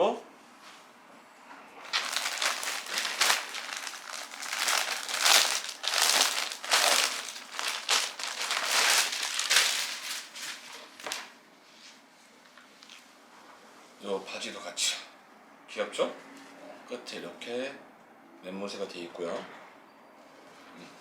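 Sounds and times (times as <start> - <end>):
plastic packaging crinkling: 1.9 - 11.3.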